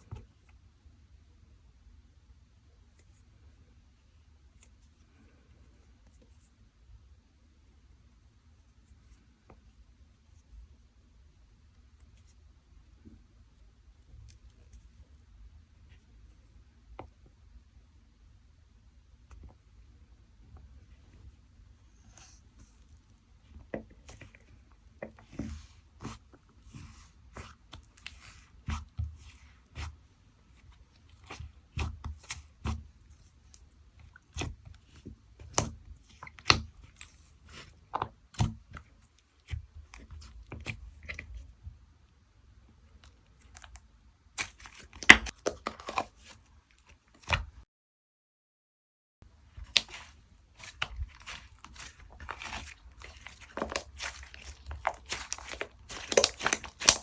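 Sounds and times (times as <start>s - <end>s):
slime squishing with sticky clicks: 22.0s - 41.6s, 42.9s - 47.6s, 49.5s - 57.0s.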